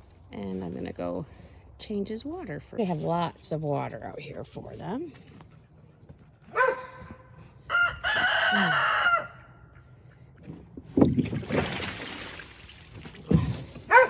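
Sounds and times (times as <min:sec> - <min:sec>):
rooster crowing: 0:07.7 - 0:09.7
water splashing: 0:11.0 - 0:13.8.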